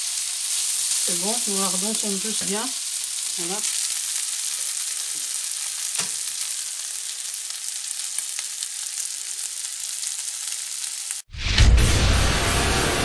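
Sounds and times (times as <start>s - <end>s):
food sizzling in frying pan: 0.0s - 11.3s
loud low rumble: 11.4s - 13.0s.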